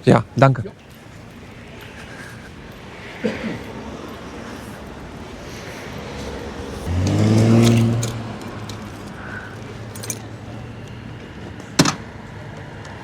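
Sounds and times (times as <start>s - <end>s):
motorcycle engine starting and idling: 6.6s - 13.0s.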